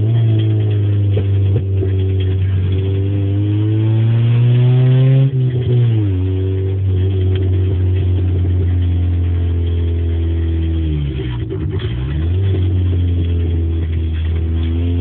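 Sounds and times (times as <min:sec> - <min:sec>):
loud car engine drone: 0:00.0 - 0:15.0.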